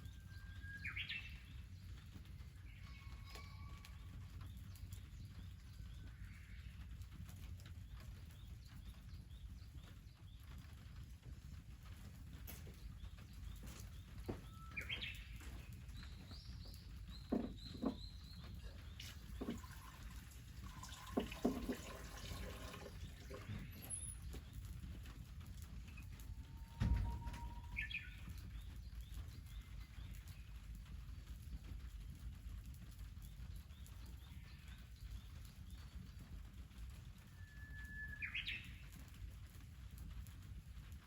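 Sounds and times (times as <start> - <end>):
small birds chirping: 0.0 - 26.5
sharp clicks and knocks: 17.1 - 18.3
thump: 17.3 - 18.0, 26.8 - 27.4.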